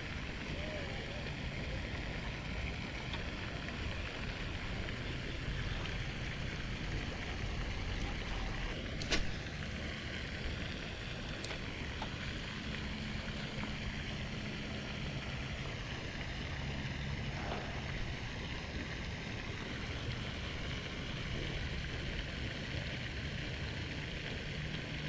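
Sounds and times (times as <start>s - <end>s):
sharp click: 9.0s - 9.4s.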